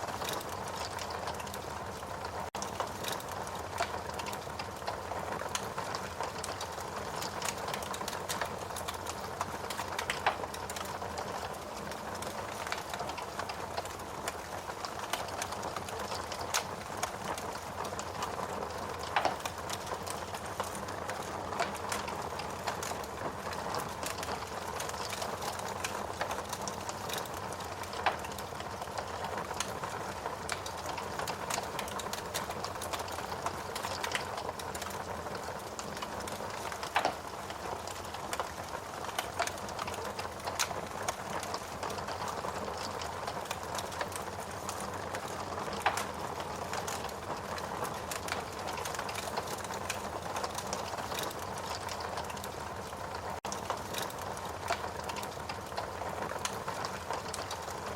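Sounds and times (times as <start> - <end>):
fire crackling in a fireplace: 0.0 - 57.9
loud pops of fire: 36.5 - 38.4.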